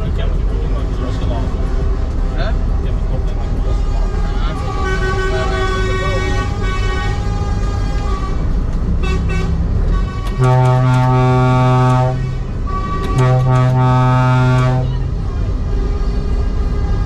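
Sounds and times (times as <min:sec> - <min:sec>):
diesel engine rumble: 0:00.0 - 0:17.0
higher horn toots: 0:03.5 - 0:17.0
truck horn blasts: 0:03.6 - 0:17.0.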